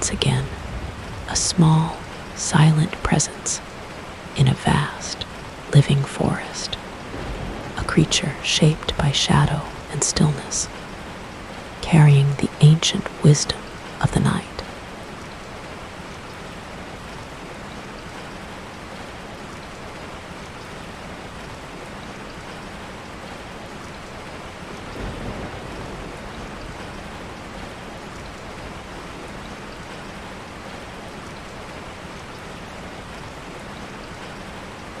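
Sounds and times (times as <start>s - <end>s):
low rumble: 0.0s - 3.8s, 6.6s - 11.9s
rain falling on leaves: 0.0s - 35.0s.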